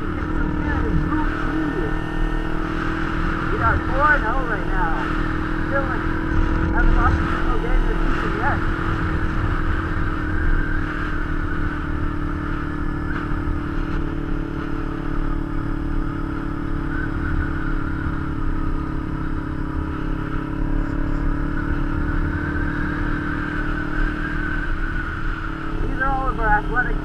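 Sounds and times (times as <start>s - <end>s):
motorcycle engine cruising: 0.0s - 27.0s
wind rumbling on microphone: 5.3s - 15.2s.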